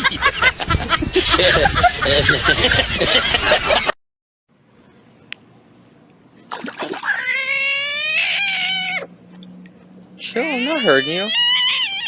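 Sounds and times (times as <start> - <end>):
cat yowling: 7.1 - 9.1, 10.4 - 12.0.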